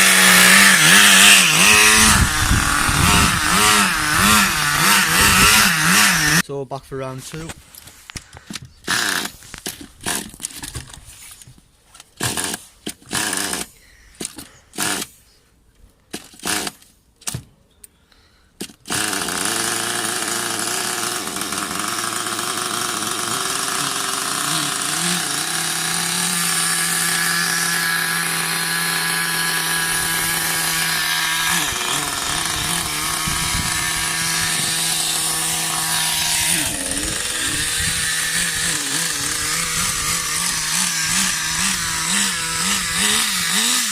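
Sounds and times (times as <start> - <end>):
pull-starter pulls: 0.0 - 6.4, 7.2 - 15.2, 16.1 - 17.5, 18.6 - 43.9
small nitro engine buzzing: 0.0 - 6.4, 8.8 - 10.7, 18.6 - 43.9.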